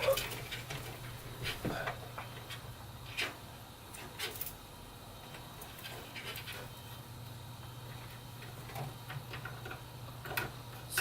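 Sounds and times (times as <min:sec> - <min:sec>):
cable scraping and ticking: 0:05.3 - 0:11.0.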